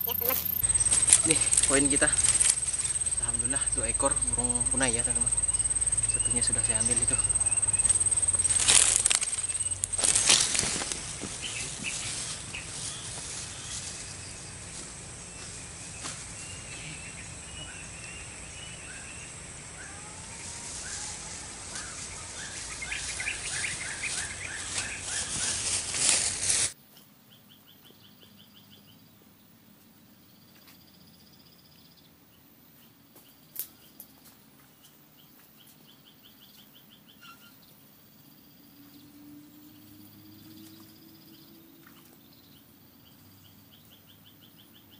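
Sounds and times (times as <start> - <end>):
chirping trills: 0.0 - 13.2, 16.6 - 25.9
steady rustling noise: 0.0 - 16.4, 21.8 - 26.8
small birds chirping: 0.0 - 44.9.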